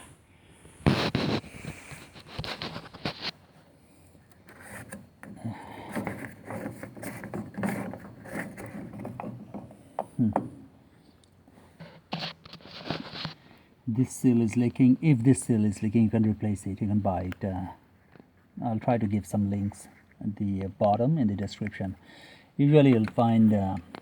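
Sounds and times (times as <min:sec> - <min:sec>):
plastic scraping and clunking: 0:00.8 - 0:03.4, 0:04.3 - 0:10.8, 0:11.7 - 0:13.4.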